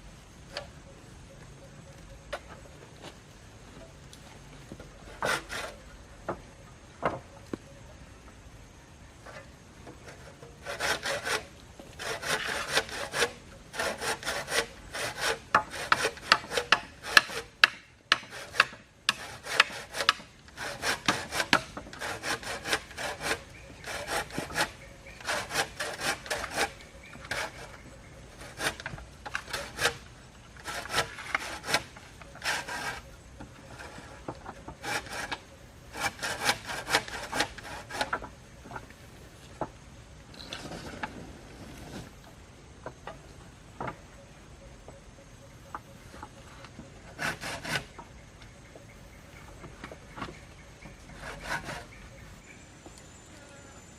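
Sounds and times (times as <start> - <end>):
hand saw cutting wood: 5.0 - 5.9, 10.0 - 38.3, 47.1 - 48.0, 49.9 - 52.2.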